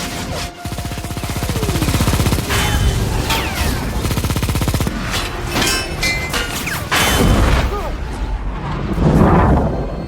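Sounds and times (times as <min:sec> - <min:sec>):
rapid automatic cannon fire: 0:00.0 - 0:05.4.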